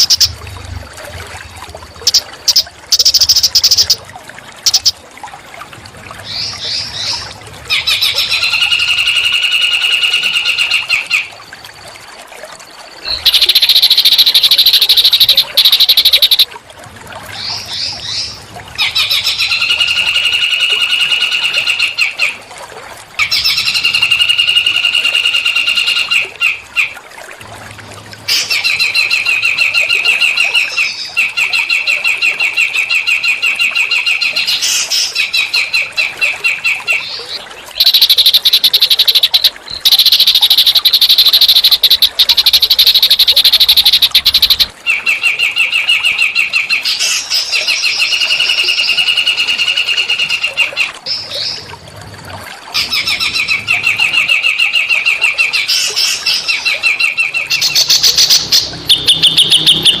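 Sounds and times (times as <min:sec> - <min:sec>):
songbirds rattling trills: 0:00.0 - 0:00.4, 0:02.0 - 0:04.0, 0:04.6 - 0:05.0, 0:13.0 - 0:16.5, 0:37.0 - 0:45.2, 0:55.6 - 1:00.0
harsh buzzing bird phrase: 0:37.8 - 0:44.7.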